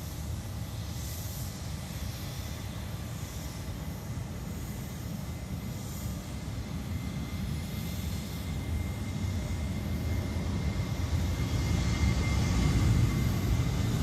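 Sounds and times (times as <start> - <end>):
jet engines rumbling and whining: 0.0 - 14.0.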